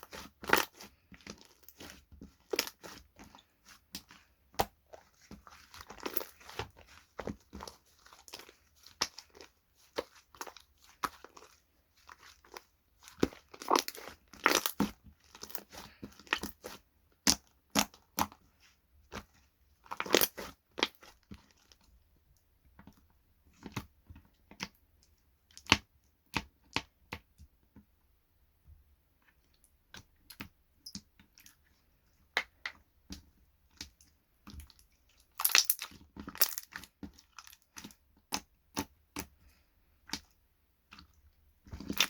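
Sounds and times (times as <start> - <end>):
slime popping and crackling: 3.9 - 18.3, 19.9 - 21.0, 35.3 - 37.7.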